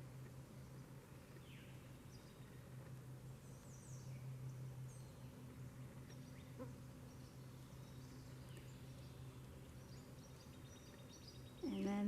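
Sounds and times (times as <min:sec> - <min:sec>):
faint low hum: 0:00.0 - 0:12.0
bird chirps: 0:06.0 - 0:12.0.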